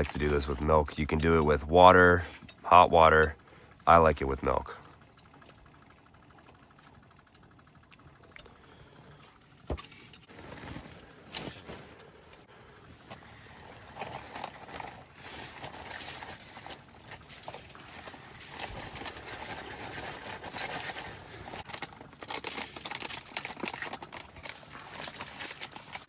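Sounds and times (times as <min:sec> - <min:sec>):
rustling: 0:09.6 - 0:26.0.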